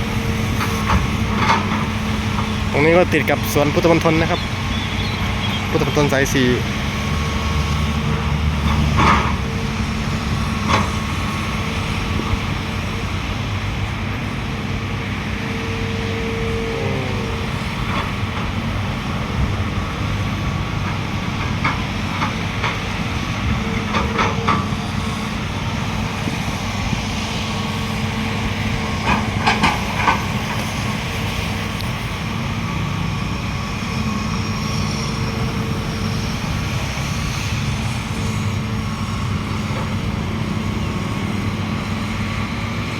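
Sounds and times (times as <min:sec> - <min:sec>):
heavy diesel machinery running: 0:00.0 - 0:42.9.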